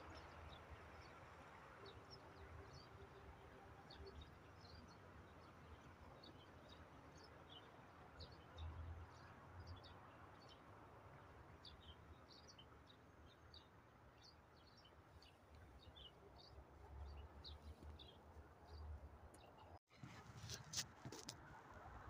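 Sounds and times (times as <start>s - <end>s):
small birds chirping: 11.6s - 19.8s.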